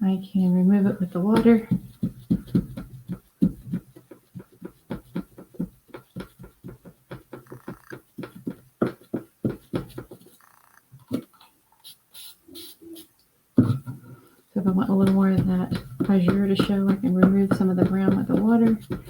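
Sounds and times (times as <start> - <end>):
sponge dabbing paint on wood: 0.3 - 10.5, 14.6 - 19.0.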